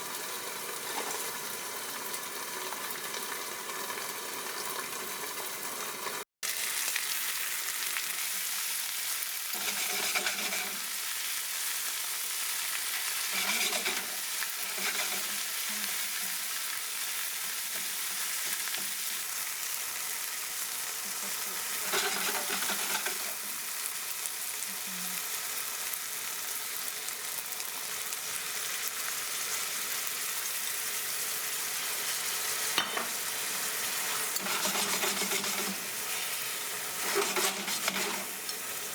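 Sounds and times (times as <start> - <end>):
meat sizzling in a frying pan: 0.0 - 38.9
utensil scraping a pan: 9.5 - 10.9, 13.2 - 16.4, 21.2 - 23.4, 32.0 - 38.8.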